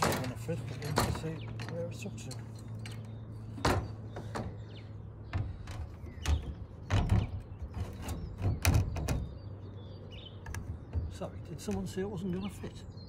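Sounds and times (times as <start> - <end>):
knocks on sheet-metal van body: 5.3 - 9.4.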